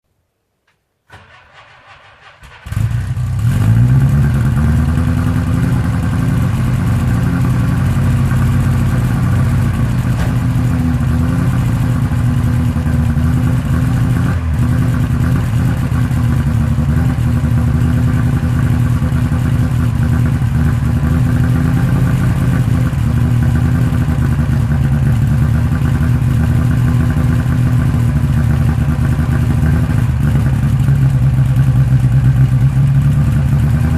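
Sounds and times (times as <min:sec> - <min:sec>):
car engine cranking: 0:01.1 - 0:16.5
car engine revving and idling: 0:02.5 - 0:33.9.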